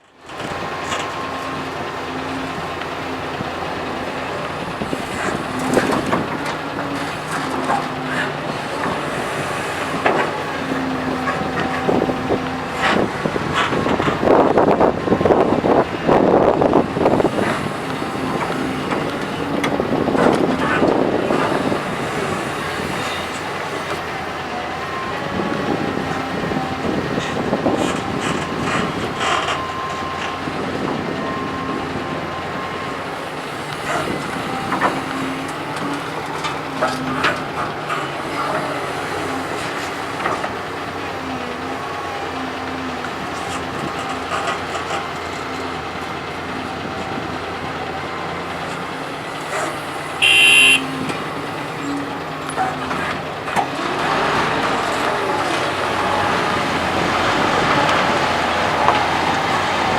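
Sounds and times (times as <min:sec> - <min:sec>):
excavator engine running: 0:00.0 - 0:59.9
loud high-pitched tone: 0:50.2 - 0:51.0.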